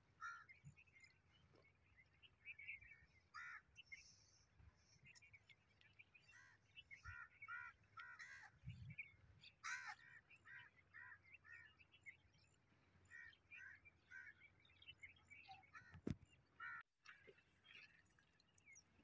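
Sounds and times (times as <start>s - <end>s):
faint bird calls: 2.4s - 12.2s, 13.1s - 17.9s.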